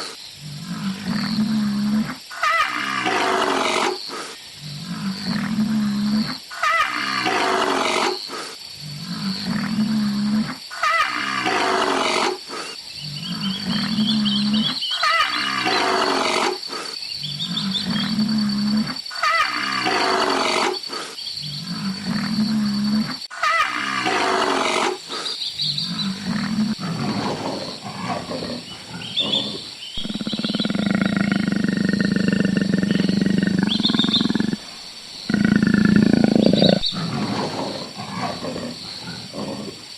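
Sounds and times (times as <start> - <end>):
big cat roaring: 17.3 - 20.8, 21.4 - 25.0, 25.7 - 39.9.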